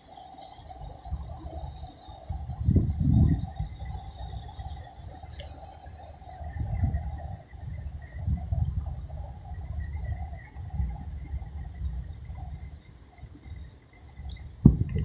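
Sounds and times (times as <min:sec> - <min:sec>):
high-pitched insect chorus: 0:00.0 - 0:15.0
wind rumbling on microphone: 0:00.8 - 0:15.0.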